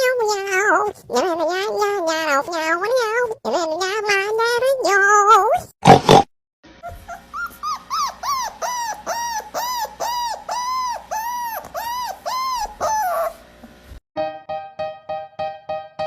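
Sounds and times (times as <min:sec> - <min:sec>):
dog whining: 0:06.8 - 0:13.5.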